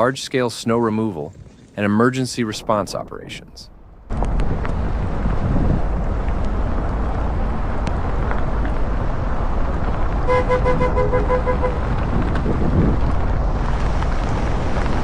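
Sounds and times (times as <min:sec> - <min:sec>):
low rumble of street noise: 0:00.0 - 0:15.0
vehicle horn honks: 0:10.3 - 0:11.9.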